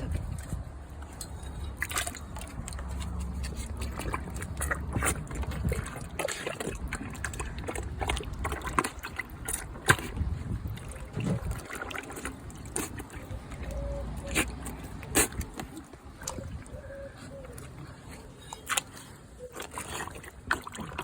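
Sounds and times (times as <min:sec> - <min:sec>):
pool water splashing: 0:10.8 - 0:21.0.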